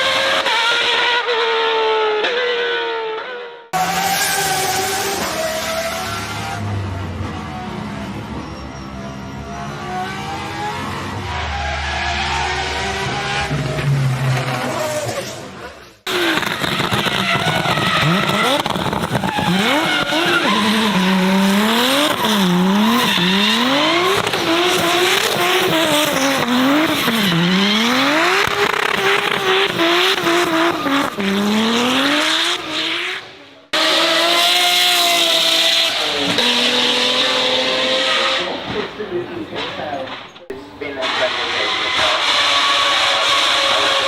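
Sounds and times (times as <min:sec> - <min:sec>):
tyres screeching: 0:08.2 - 0:32.8, 0:39.5 - 0:44.0
car engine revving hard: 0:16.1 - 0:39.0, 0:41.0 - 0:44.0.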